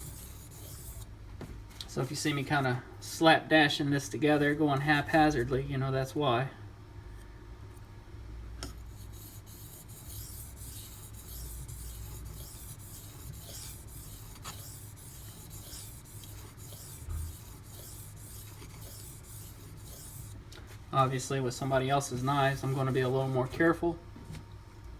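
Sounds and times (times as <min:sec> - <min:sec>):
steady low hum: 0:00.0 - 0:24.9
knife scraping on sharpening stone: 0:09.2 - 0:20.3.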